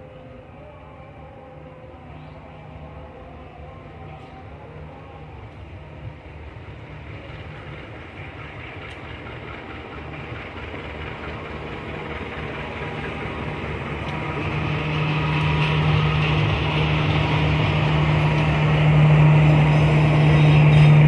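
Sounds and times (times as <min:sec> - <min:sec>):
locomotive engine hum: 0:00.0 - 0:21.0
rail noise: 0:00.0 - 0:21.0.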